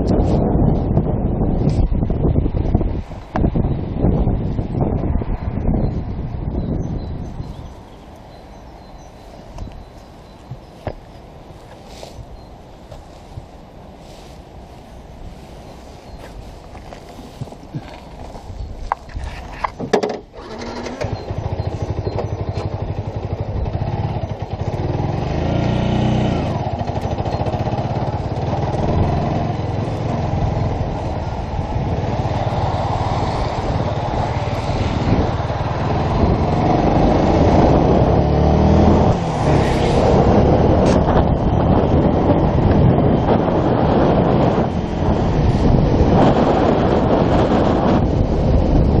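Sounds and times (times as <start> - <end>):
motorcycle engine revving: 20.0 - 49.0.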